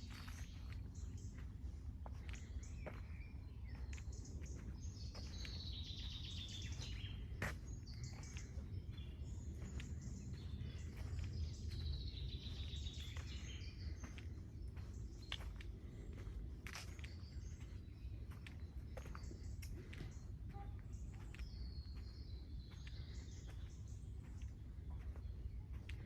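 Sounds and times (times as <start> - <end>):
low outdoor rumble: 0.0 - 26.0
songbird singing: 0.0 - 26.0.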